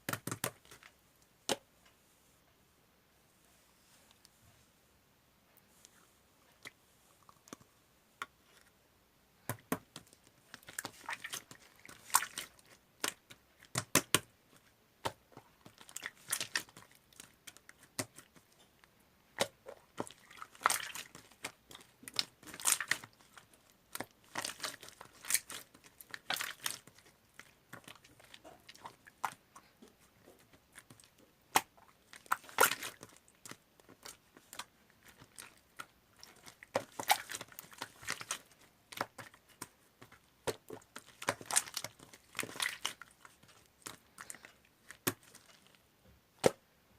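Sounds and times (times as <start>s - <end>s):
slime squeezed crackling: 10.0s - 14.2s, 15.6s - 18.7s, 19.4s - 45.8s.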